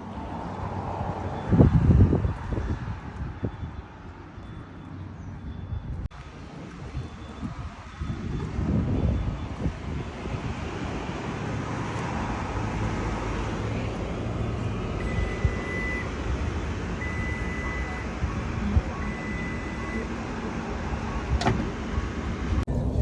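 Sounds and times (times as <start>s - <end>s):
road and tyre noise: 0.0s - 23.0s
electronic beeps: 15.0s - 21.4s.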